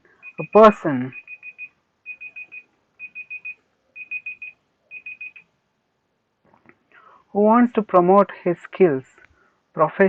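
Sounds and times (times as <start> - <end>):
electronic alarm beeping: 0.2 - 5.5.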